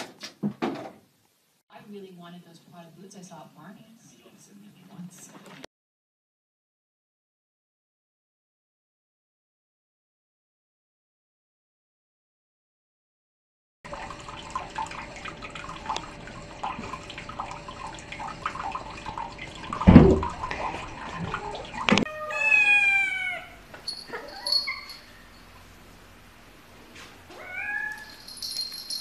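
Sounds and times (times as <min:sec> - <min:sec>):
knocks and thump: 0:00.0 - 0:01.0, 0:19.8 - 0:20.5
water running from tap: 0:13.9 - 0:22.0
cat meowing: 0:22.0 - 0:24.9, 0:27.3 - 0:28.2.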